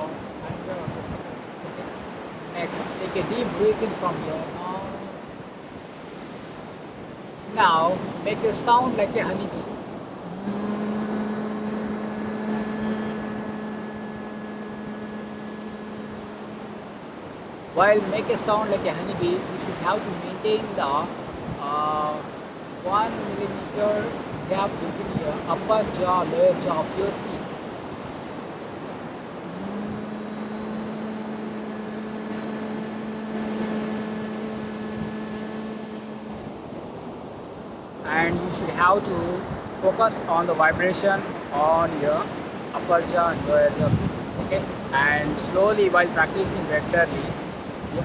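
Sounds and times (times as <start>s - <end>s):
rushing background noise: 0.0s - 48.0s
person humming a long steady note: 8.8s - 18.1s, 29.2s - 37.2s.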